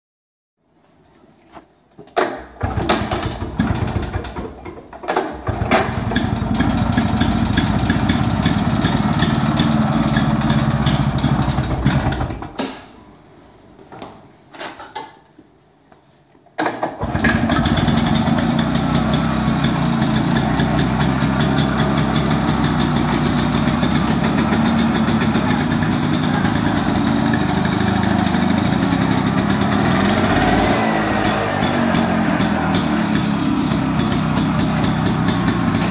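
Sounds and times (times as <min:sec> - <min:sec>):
two-stroke tractor engine running: 0:02.6 - 0:04.5, 0:05.3 - 0:12.5, 0:17.0 - 0:35.9.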